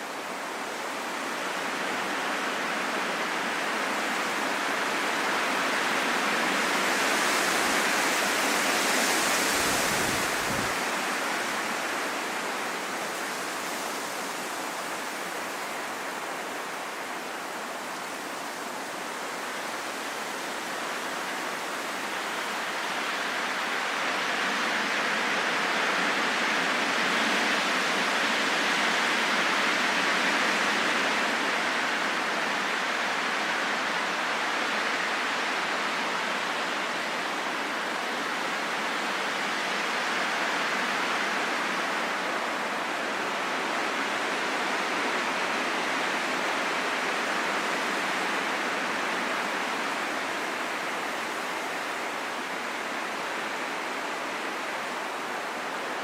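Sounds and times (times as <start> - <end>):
wind blowing: 6.7 - 19.3.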